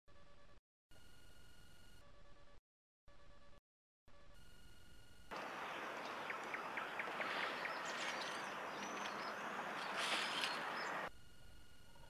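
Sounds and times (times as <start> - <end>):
small birds chirping: 5.3 - 11.1.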